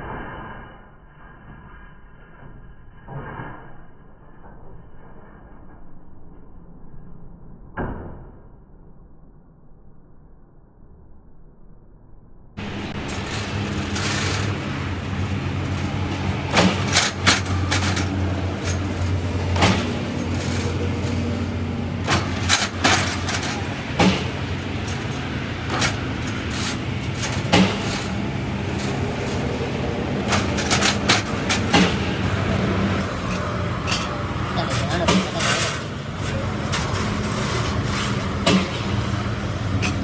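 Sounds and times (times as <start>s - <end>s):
low machine hum: 12.6s - 40.0s.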